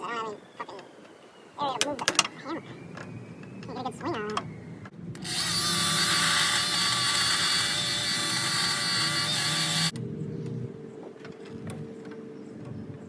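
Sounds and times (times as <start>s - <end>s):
rotary tool cutting metal: 5.2s - 10.0s.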